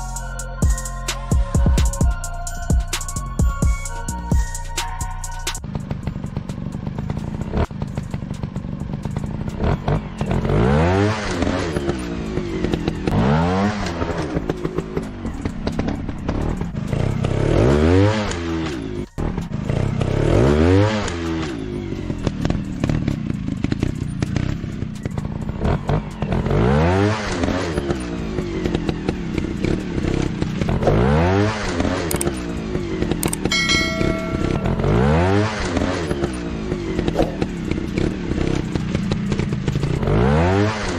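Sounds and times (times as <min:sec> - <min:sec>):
motorcycle engine revving: 0:05.4 - 0:40.9
short steady beep: 0:33.5 - 0:35.4.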